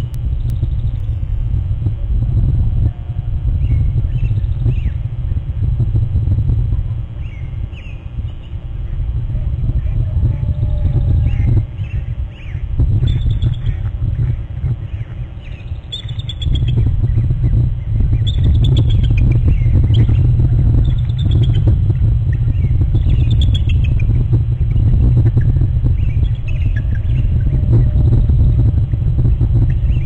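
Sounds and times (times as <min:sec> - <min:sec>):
steady low rumble: 0:00.0 - 0:30.0
bird chirping: 0:14.8 - 0:21.7.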